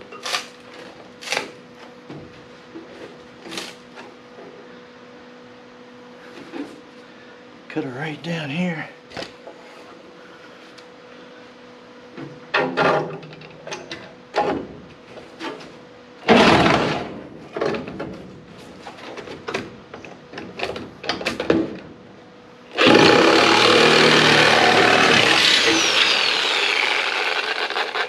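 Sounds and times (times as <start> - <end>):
power tool cutting sheet metal: 22.7 - 28.0.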